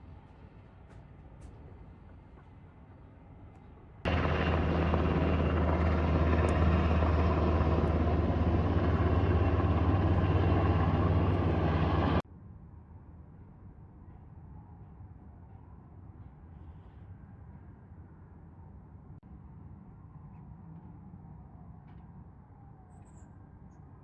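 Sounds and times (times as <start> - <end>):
helicopter flying close: 4.1 - 12.2.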